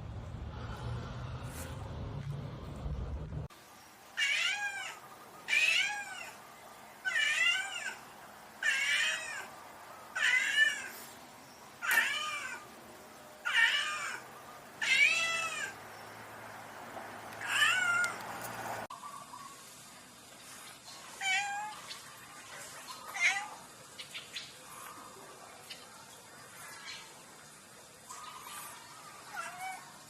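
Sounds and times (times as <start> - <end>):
cat meowing: 4.2 - 6.4, 7.0 - 8.0, 8.6 - 9.5, 10.2 - 10.9, 11.8 - 12.6, 13.4 - 14.2, 14.8 - 15.8, 17.4 - 18.2, 29.2 - 30.0.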